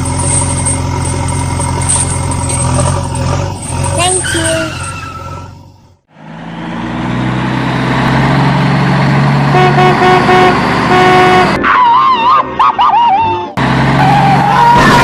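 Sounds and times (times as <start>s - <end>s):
vehicle engine running: 0.0s - 4.8s, 5.5s - 11.6s
horn honking: 9.4s - 11.7s.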